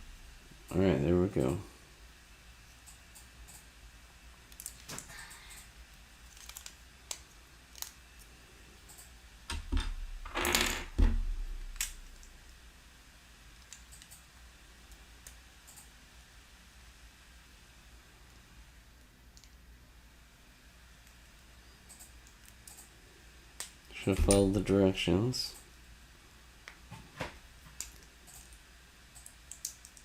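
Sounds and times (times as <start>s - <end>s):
plastic building pieces clicking: 6.3s - 8.0s, 29.2s - 30.0s.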